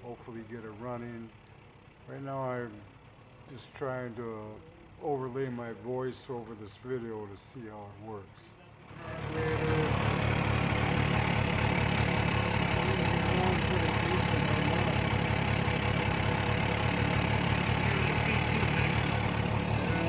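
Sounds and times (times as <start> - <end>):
motorcycle engine idling: 0.1 - 3.5, 8.7 - 20.0.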